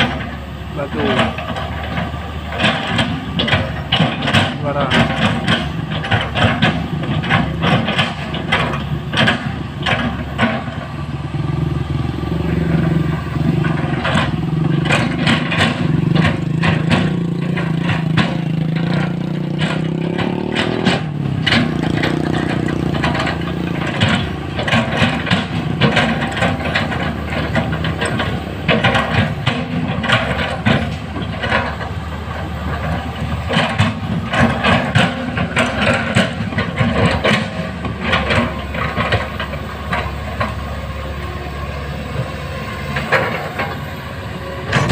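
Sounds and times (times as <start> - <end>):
excavator diesel engine running: 0.0 - 44.9
bucket clanking and scraping on rock: 12.4 - 40.6, 44.6 - 44.9.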